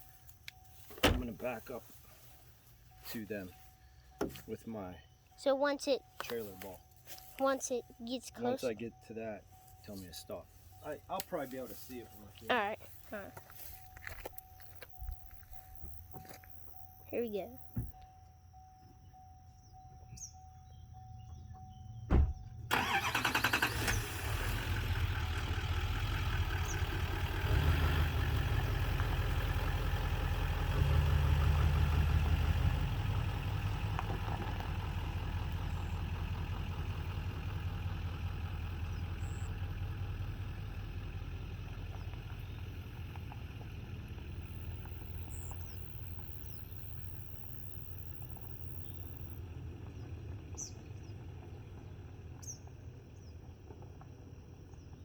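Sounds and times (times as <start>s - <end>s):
diesel engine starting and rumbling: 20.9s - 55.0s.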